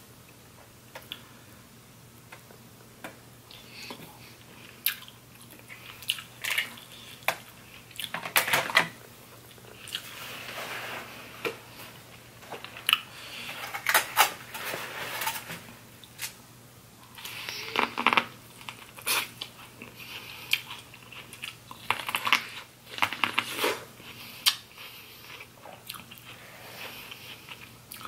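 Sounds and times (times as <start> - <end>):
chewing and wet mouth noises: 3.5 - 8.2, 18.6 - 28.0.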